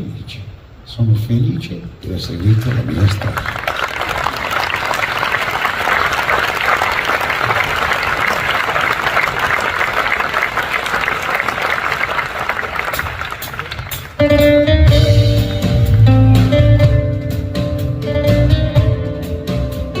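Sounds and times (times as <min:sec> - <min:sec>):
audience applauding: 0:02.3 - 0:14.4.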